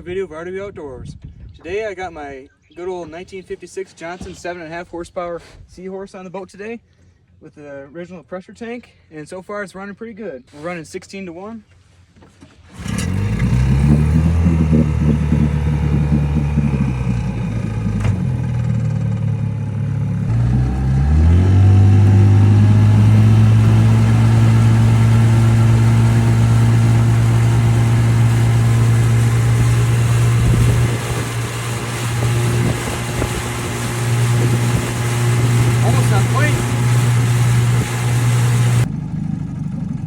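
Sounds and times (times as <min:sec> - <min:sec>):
outboard motor running: 0:12.4 - 0:40.0.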